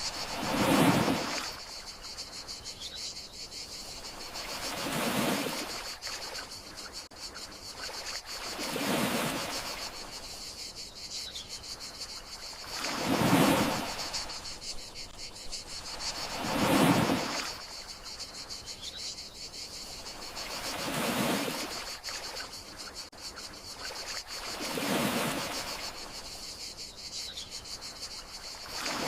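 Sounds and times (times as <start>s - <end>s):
sea waves washing in: 0.0s - 2.1s, 3.9s - 6.5s, 8.0s - 10.2s, 12.6s - 14.6s, 15.8s - 17.8s, 20.2s - 22.4s, 24.0s - 26.2s
crickets chirring: 0.0s - 29.0s.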